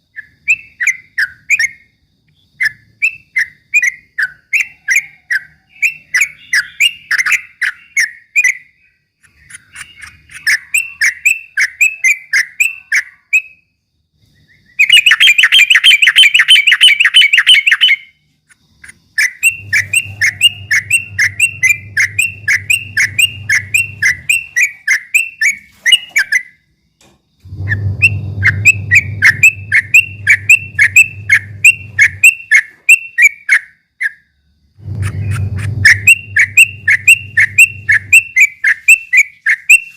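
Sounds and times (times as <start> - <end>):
bird chattering song: 0.1 - 13.6, 14.3 - 26.6, 27.5 - 34.2, 34.8 - 39.9
low hum: 19.4 - 24.7, 27.4 - 32.4, 34.7 - 38.4.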